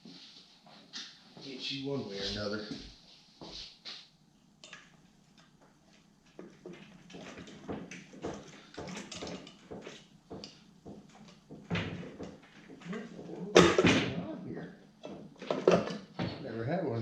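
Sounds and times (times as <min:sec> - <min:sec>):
hand tools clicking and knocking: 0:06.2 - 0:13.9, 0:15.0 - 0:16.3.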